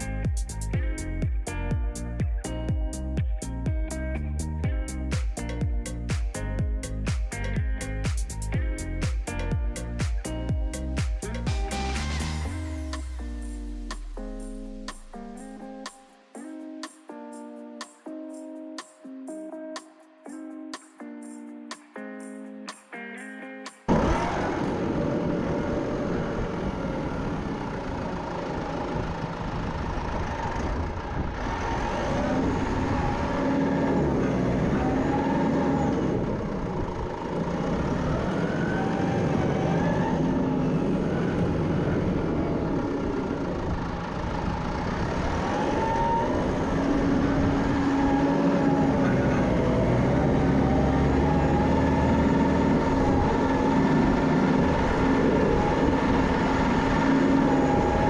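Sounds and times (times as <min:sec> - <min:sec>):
tractor engine revving: 0:10.7 - 0:15.2, 0:23.9 - 0:58.0.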